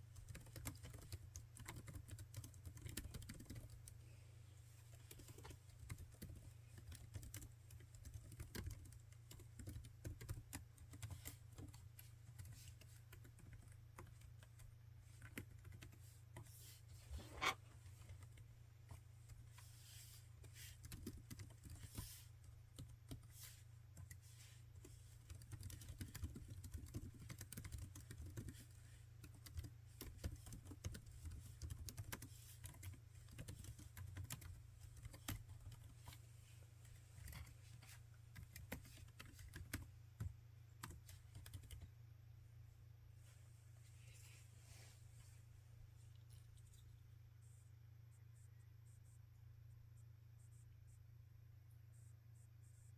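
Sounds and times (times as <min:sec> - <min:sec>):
typing on laptop keyboard: 0:00.1 - 0:04.0, 0:05.0 - 0:16.0, 0:20.7 - 0:23.3, 0:24.8 - 0:36.0, 0:37.2 - 0:41.9.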